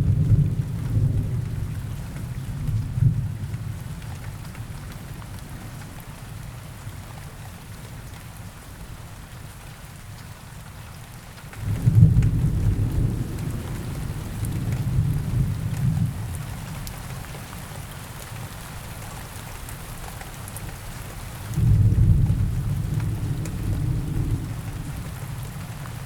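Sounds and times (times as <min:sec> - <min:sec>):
steady rain falling: 0:00.0 - 0:26.0
thunder rumbling: 0:11.6 - 0:16.4, 0:21.6 - 0:26.0.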